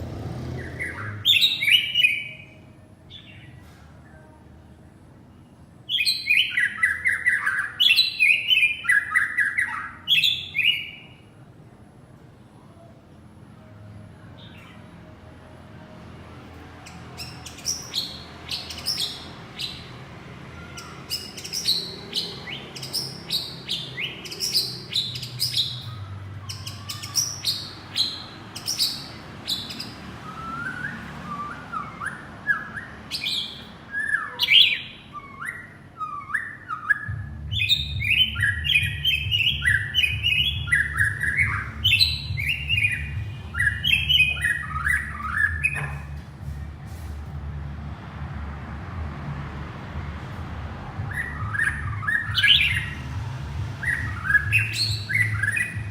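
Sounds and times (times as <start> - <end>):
bird singing whistles: 5.9 - 11.2, 26.5 - 46.0, 51.1 - 53.0, 53.8 - 55.9.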